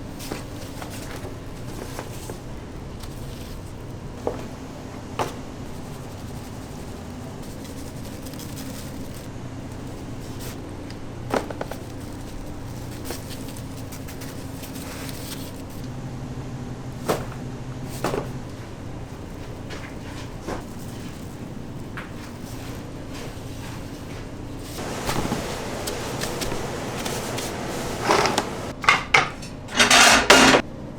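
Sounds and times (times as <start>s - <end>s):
steady low hum: 23.9s - 28.8s.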